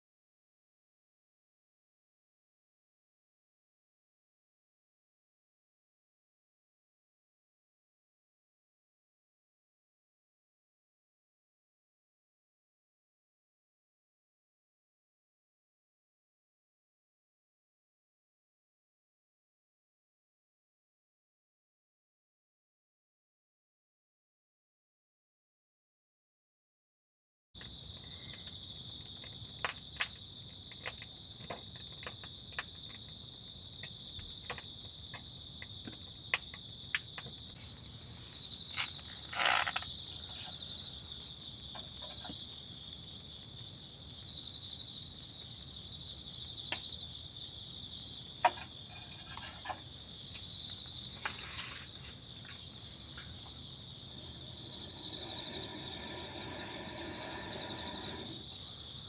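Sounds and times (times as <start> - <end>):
crickets chirping: 27.6 - 59.0.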